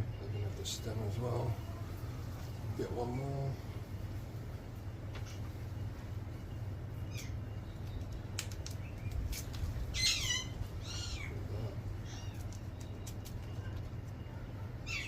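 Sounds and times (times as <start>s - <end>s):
steady low hum: 0.0s - 15.0s
sharp clicks: 7.8s - 9.6s
parrot squawking: 9.9s - 12.4s.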